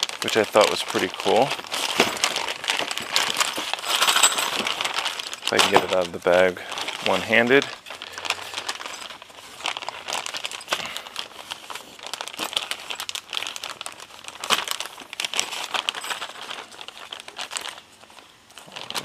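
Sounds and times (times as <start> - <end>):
bag rustling and crinkling: 0.0 - 19.0.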